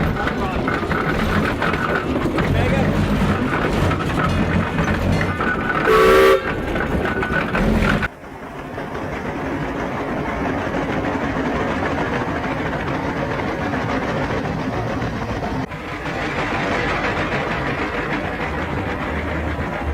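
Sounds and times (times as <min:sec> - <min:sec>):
steam engine running: 0:00.0 - 0:19.9
steam whistle blast: 0:05.9 - 0:06.5.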